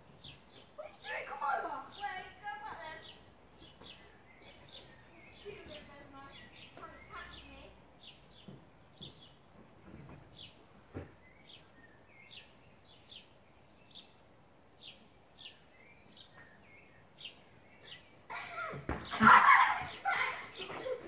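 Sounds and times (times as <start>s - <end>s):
garden ambience: 0.0s - 21.0s
small bird chirping: 3.0s - 10.6s, 11.2s - 18.3s.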